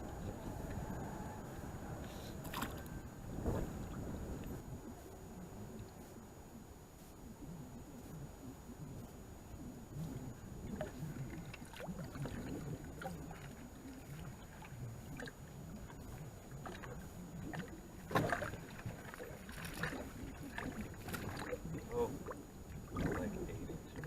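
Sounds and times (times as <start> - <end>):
water sloshing: 1.8 - 4.4, 10.6 - 24.0.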